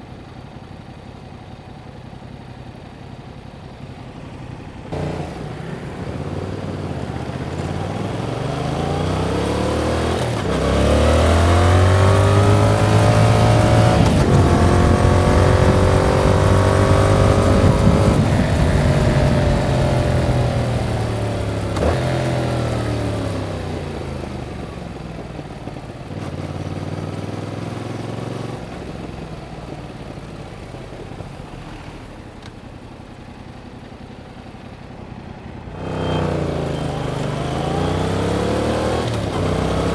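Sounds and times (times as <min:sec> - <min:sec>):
motorcycle engine accelerating: 0:00.1 - 0:39.9.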